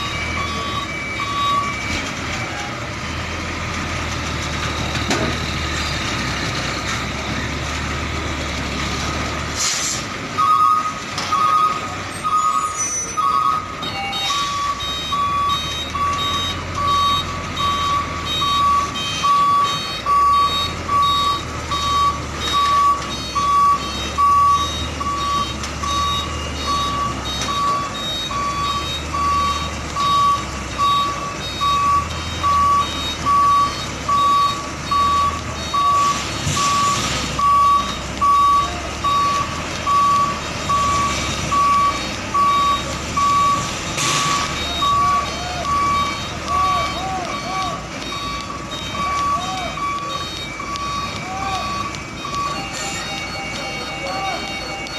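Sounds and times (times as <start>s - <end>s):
diesel engine running: 0.0s - 54.9s
truck reversing alarm beeping: 0.0s - 54.9s
short hiss: 9.6s - 10.1s.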